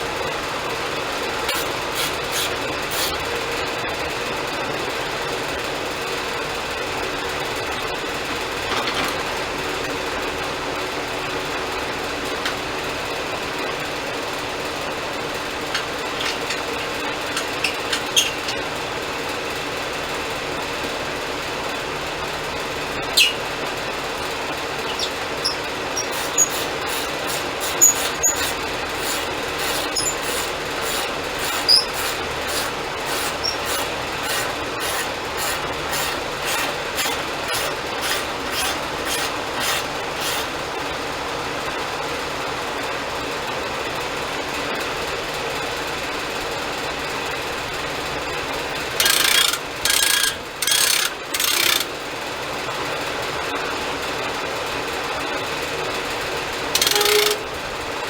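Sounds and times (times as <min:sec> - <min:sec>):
band sawmill sawing log: 0:01.4 - 0:03.3, 0:24.9 - 0:41.1, 0:56.8 - 0:57.5
sharp squeaks and clicks: 0:01.5 - 0:03.2, 0:17.3 - 0:18.6, 0:23.2 - 0:23.5, 0:24.8 - 0:40.6, 0:56.8 - 0:57.5
regular ticking: 0:24.8 - 0:40.8.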